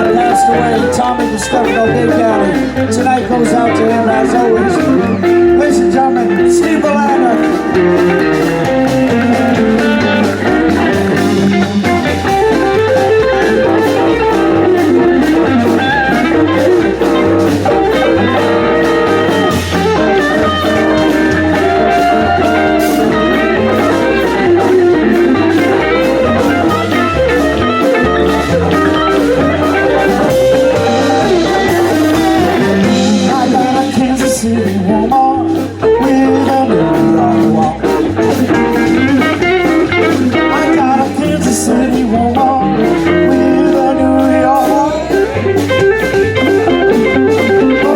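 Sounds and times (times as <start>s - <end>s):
blues band playing: 0.0s - 47.9s
electric guitar: 0.0s - 47.9s.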